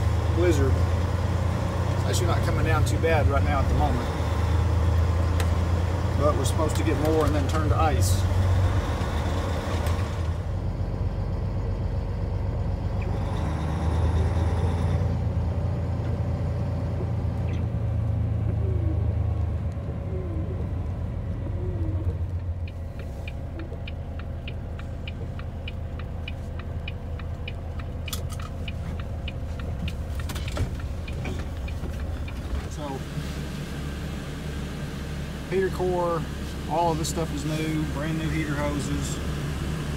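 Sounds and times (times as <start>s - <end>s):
road rumble: 0.0s - 39.9s
truck diesel engine: 0.0s - 39.9s
fast regular ticking: 22.2s - 32.4s.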